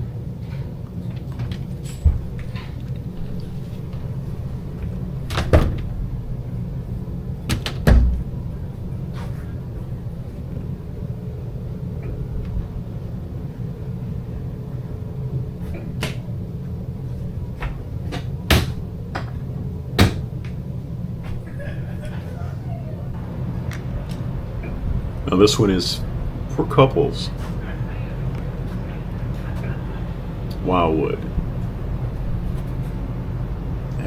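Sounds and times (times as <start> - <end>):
steady low hum: 0.0 - 34.0
cabinet doors knocking shut: 4.8 - 6.1, 7.5 - 8.5, 17.6 - 19.4, 20.0 - 20.3.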